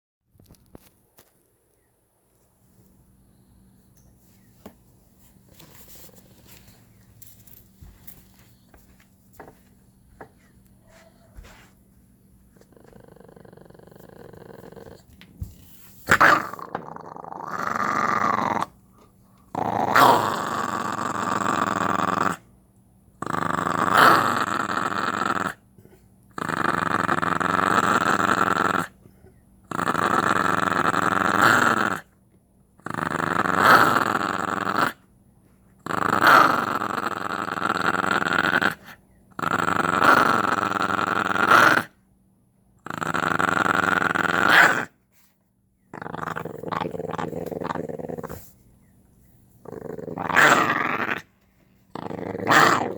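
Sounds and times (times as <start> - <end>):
small dog growling: 12.5 - 15.2, 16.1 - 22.5, 23.2 - 32.1, 32.8 - 35.0, 35.8 - 42.0, 42.8 - 45.0, 45.9 - 48.6, 49.6 - 52.9.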